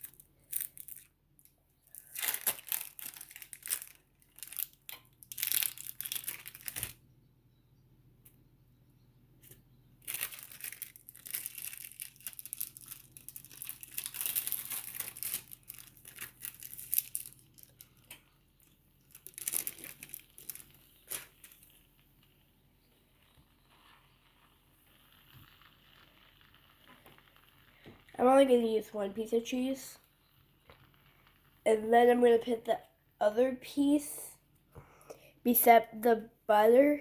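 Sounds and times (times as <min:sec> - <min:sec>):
plastic wrapper crinkling: 0:00.0 - 0:07.0, 0:09.5 - 0:22.4, 0:23.1 - 0:28.2.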